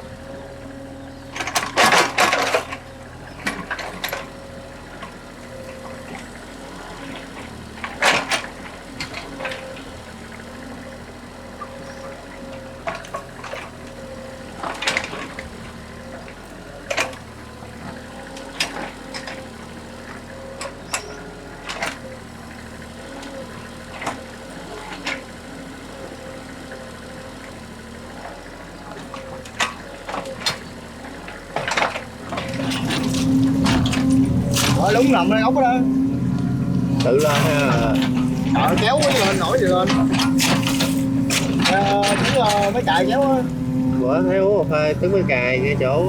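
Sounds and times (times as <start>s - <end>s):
excavator diesel engine running: 0.0s - 46.0s
bucket clanking and splashing in mud: 31.6s - 46.0s.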